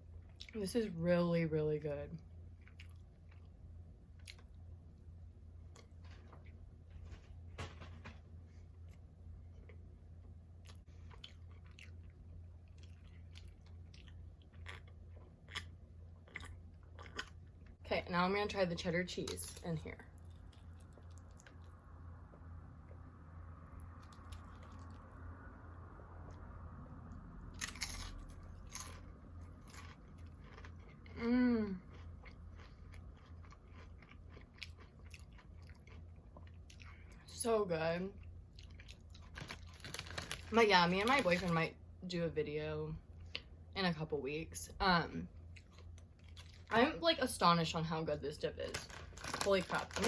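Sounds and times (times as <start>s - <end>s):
chips being chewed: 10.6s - 17.5s, 27.6s - 37.1s, 38.5s - 41.5s, 48.6s - 50.0s.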